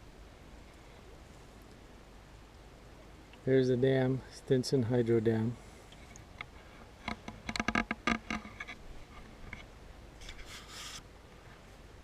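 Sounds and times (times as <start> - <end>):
brief hiss: 10.2 - 11.1.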